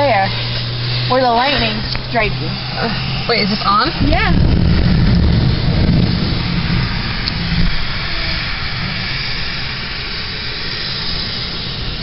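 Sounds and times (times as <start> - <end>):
low rumble: 0.0 - 12.0
heavy rain on car roof: 3.7 - 10.0.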